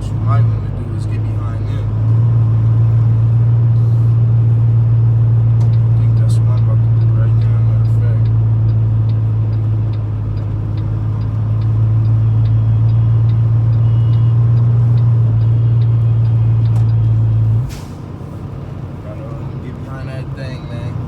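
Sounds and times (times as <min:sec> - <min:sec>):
diesel engine drone: 0:00.0 - 0:21.0
faint regular ticking: 0:05.6 - 0:17.0.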